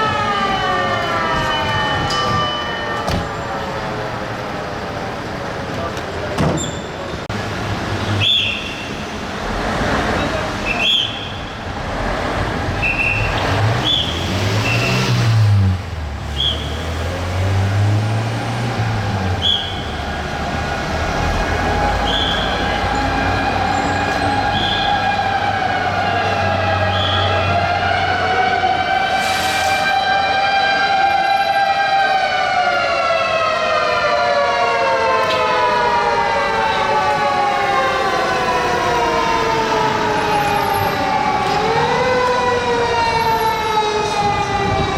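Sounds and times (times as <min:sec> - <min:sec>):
fire engine siren wailing: 0:00.0 - 0:06.2, 0:17.3 - 0:44.9
city traffic noise: 0:00.0 - 0:44.9.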